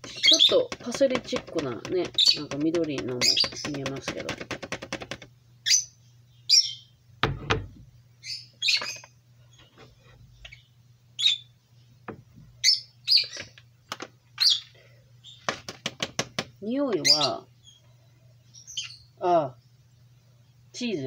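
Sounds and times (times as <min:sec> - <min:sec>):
small bird chirping: 0:00.0 - 0:04.1, 0:05.6 - 0:07.0, 0:08.2 - 0:13.6, 0:14.4 - 0:15.5, 0:16.9 - 0:19.8
pot knocking on glass cooktop: 0:00.0 - 0:05.2
low steady hum: 0:00.0 - 0:15.5.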